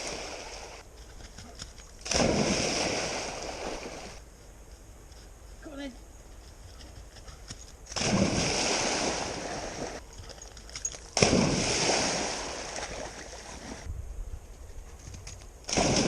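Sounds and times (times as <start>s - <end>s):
dog splashing through water: 2.0s - 4.2s, 7.9s - 13.9s.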